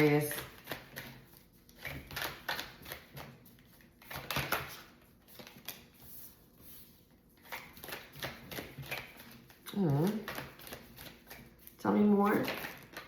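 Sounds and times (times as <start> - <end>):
cards being shuffled: 0.3 - 11.8.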